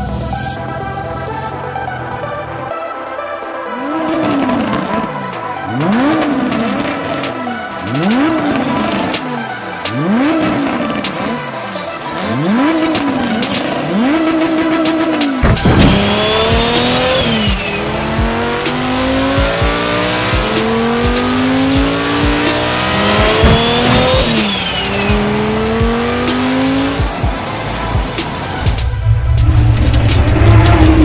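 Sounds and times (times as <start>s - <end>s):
sports car engine revving: 3.7s - 31.0s
car accelerating through gears: 3.8s - 31.0s.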